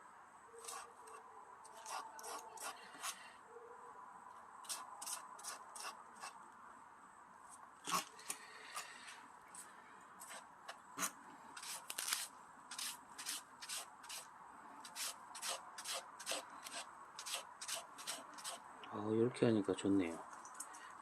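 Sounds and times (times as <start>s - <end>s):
onion shredder scraping strokes: 0.6s - 3.2s, 4.6s - 6.4s, 10.2s - 18.6s.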